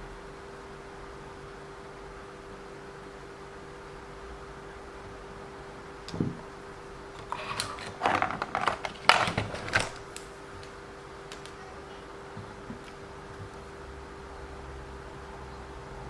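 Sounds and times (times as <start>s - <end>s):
steady hum: 0.0s - 16.0s
soft thump: 6.1s - 6.4s
small parts clicking and clattering: 7.2s - 10.7s.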